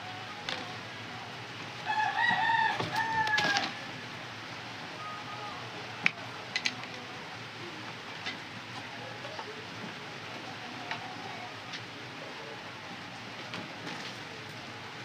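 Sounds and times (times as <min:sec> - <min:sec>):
rooster crowing: 0:01.8 - 0:03.9.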